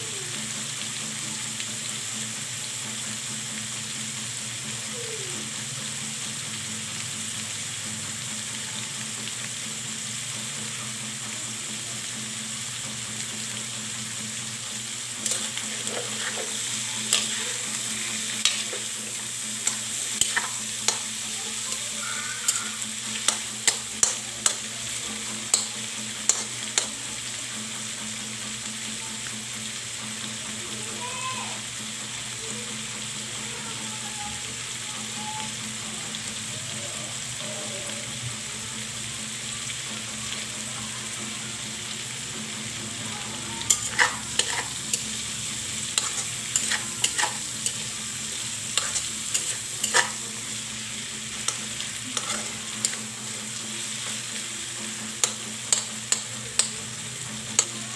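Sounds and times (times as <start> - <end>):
meat and vegetables sizzling: 0.0 - 57.9
spatula scraping a pan: 15.2 - 26.9, 43.6 - 56.7.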